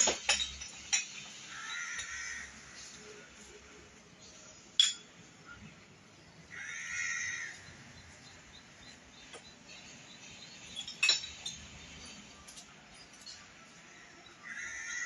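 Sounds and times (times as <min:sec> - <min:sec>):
faint clinks: 0:10.6 - 0:13.5.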